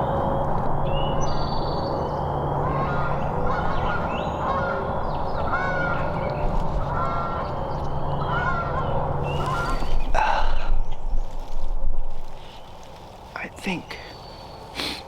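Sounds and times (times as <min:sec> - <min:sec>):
turkey yelping: 0:02.6 - 0:06.1.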